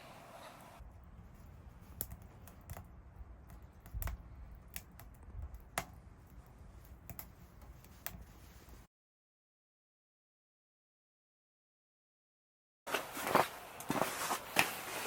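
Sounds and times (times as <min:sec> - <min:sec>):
wood fire crackling: 0:00.0 - 0:08.9.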